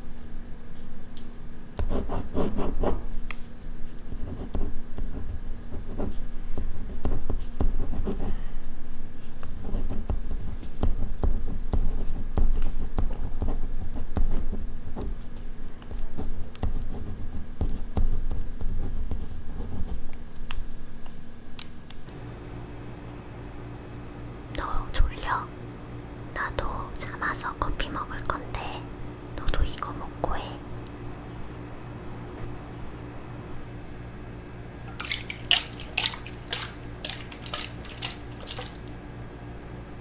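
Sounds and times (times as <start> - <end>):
pen scratching on paper: 1.8 - 3.0, 4.2 - 6.2.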